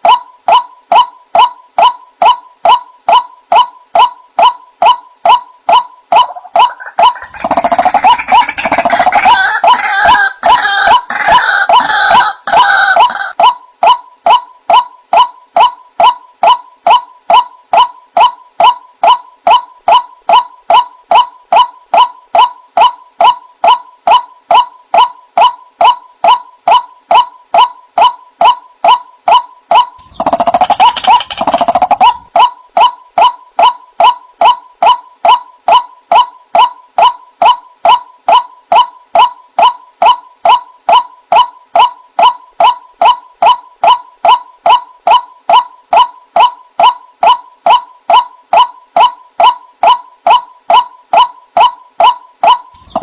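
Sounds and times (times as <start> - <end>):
waterhen calling: 6.2 - 13.4.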